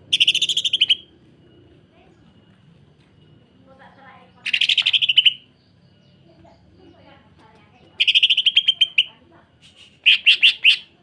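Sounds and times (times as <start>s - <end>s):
bird chattering song: 0.0s - 1.1s, 4.3s - 11.0s.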